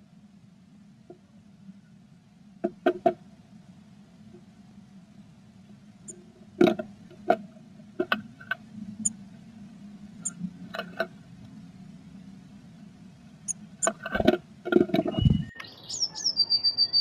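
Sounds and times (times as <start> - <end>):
steady low hum: 0.0 - 15.6
bird tapping and scratching in nest box: 13.8 - 15.2.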